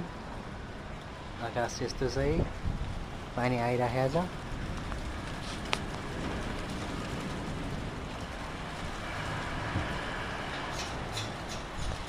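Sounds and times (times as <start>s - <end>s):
wind rushing: 4.3s - 12.0s.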